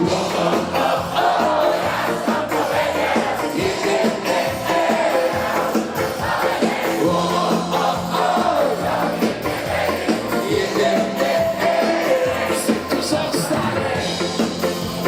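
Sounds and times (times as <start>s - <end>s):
crowd noise: 0.0s - 15.0s
ska band playing live: 0.0s - 15.0s
steady drum beat: 0.0s - 15.0s
person singing: 10.3s - 14.5s.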